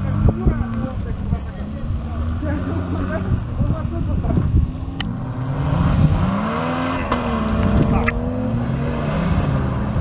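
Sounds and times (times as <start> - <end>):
engine revving under load: 0.0 - 10.0
sharp clicks: 0.8 - 5.5.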